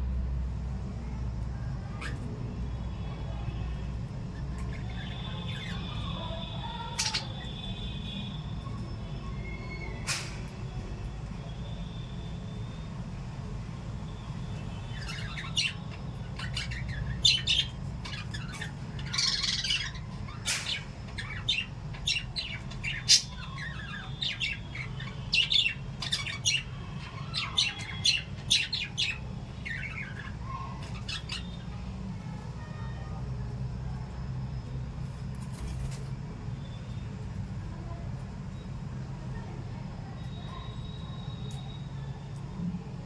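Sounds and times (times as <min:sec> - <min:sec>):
parrots chirping and squawking: 0:04.3 - 0:07.9, 0:14.5 - 0:32.5.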